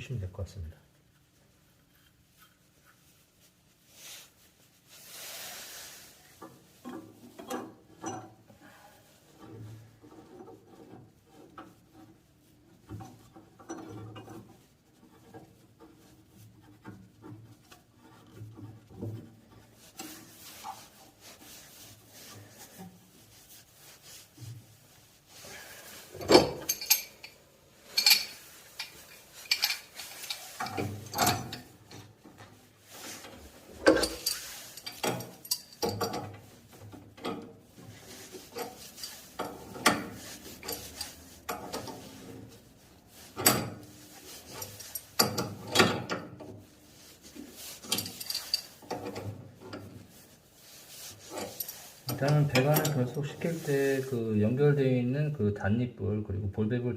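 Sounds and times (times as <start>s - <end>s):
metal rubbing and scraping: 4.3s - 54.3s
metal clinks and knocks: 26.1s - 32.1s, 33.8s - 37.5s, 47.0s - 49.9s.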